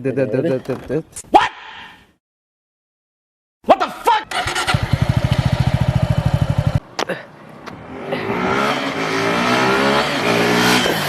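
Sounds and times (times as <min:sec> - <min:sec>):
motorbike engine accelerating: 0:04.3 - 0:06.8, 0:07.7 - 0:11.0.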